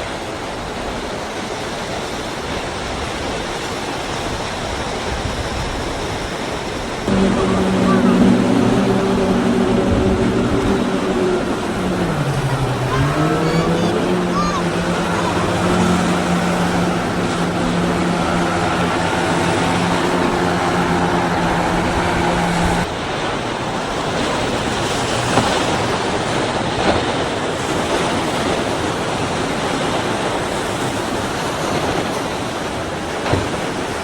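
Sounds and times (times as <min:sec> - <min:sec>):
waves: 0:00.0 - 0:34.0
powerboat engine running: 0:06.7 - 0:34.0
wind on microphone: 0:07.0 - 0:22.9.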